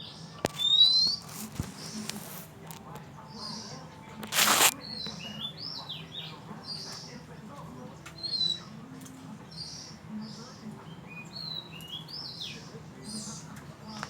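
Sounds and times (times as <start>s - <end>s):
bird singing whistled notes: 0.0s - 1.2s.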